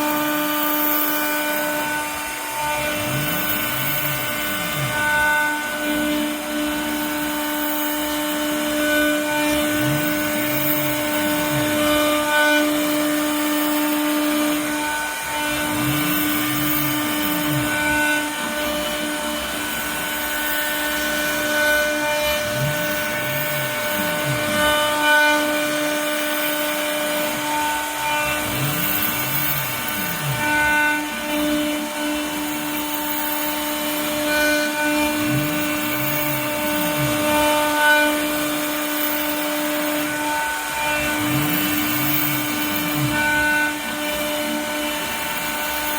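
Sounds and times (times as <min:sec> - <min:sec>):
axis motors whirring: 0:00.0 - 0:45.9
router spindle whine: 0:00.0 - 0:45.9.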